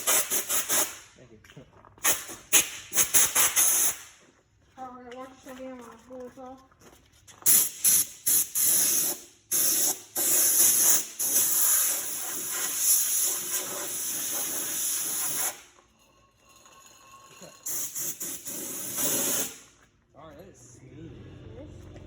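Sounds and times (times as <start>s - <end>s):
compressed air blow gun blasts: 0.0s - 1.1s, 2.0s - 4.2s, 7.4s - 15.7s, 17.7s - 19.7s.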